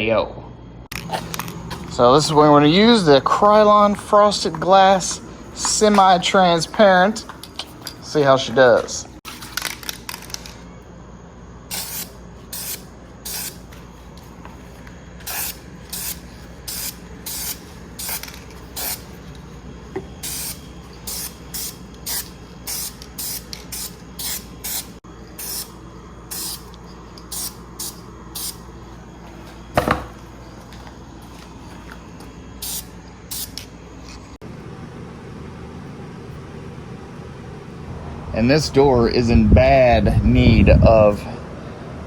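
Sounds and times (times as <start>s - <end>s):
spray paint hissing bursts: 11.7s - 13.6s, 15.2s - 19.2s, 20.2s - 26.7s, 27.3s - 28.6s, 32.6s - 33.6s.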